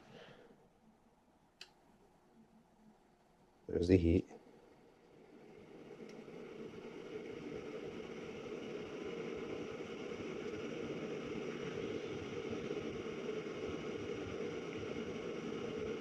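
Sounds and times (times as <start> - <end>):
furnace inducer motor whirring: 3.7 - 16.0.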